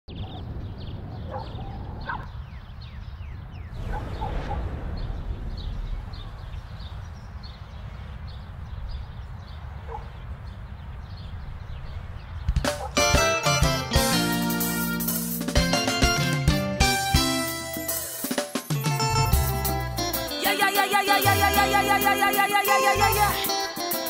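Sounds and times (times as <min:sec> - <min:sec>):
birds chirping: 0:00.1 - 0:15.9
music: 0:12.7 - 0:24.0.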